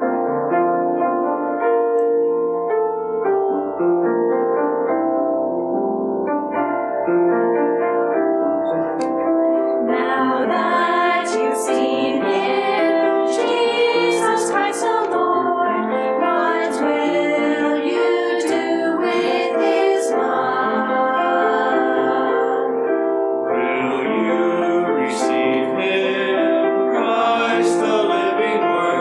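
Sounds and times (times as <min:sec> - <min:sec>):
piano accompaniment: 0:00.0 - 0:29.0
choir singing: 0:08.9 - 0:29.0.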